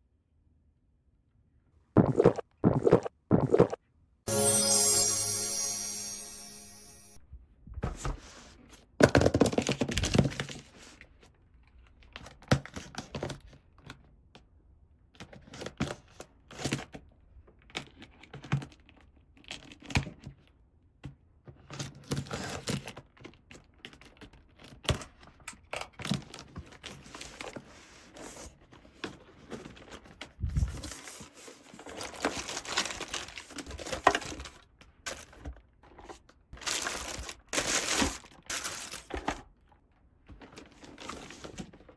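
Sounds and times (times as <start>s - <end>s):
packaging crinkling and rustling: 30.8s - 39.5s.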